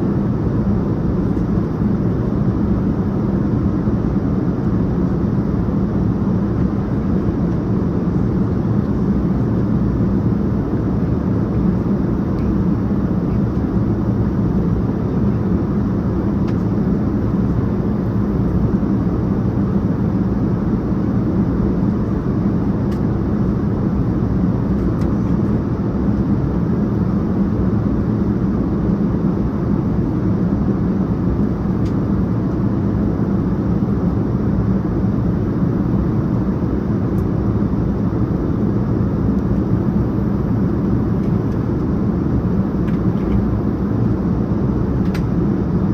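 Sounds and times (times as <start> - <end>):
aircraft cabin engine rumble: 0.0 - 45.9.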